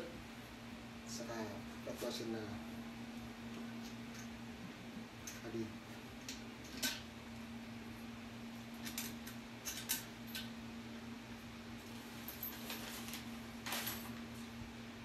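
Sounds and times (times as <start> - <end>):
steady low hum: 0.0 - 15.0
washers and nut rattling: 8.7 - 10.5.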